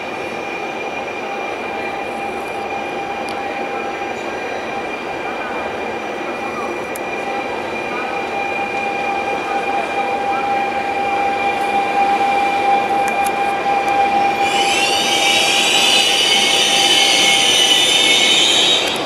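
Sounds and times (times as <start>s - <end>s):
train rolling with a whine: 0.0s - 19.0s
brake and wheel squeal: 7.2s - 19.0s.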